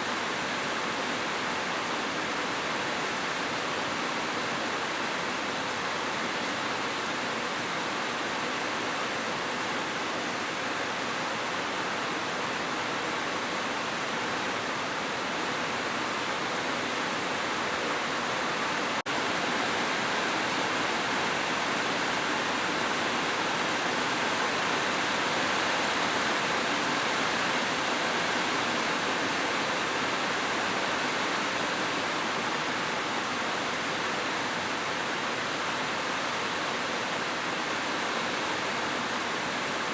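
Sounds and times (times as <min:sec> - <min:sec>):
heavy rain: 0:15.1 - 0:39.9.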